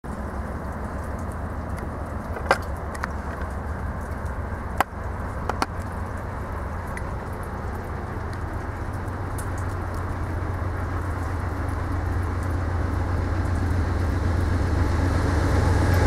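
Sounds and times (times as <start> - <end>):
diesel locomotive rumble: 0.0 - 16.0
rain hissing: 0.1 - 16.0.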